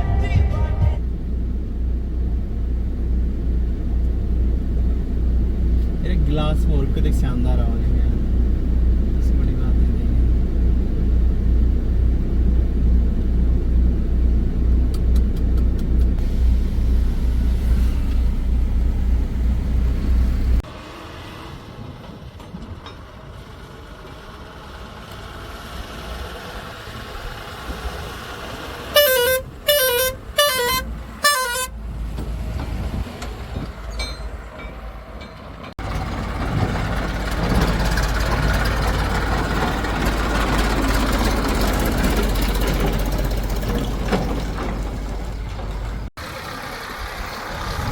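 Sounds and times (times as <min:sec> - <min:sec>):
heavy diesel engine rumbling: 0:00.0 - 0:47.9
vehicle horn honks: 0:28.9 - 0:31.8.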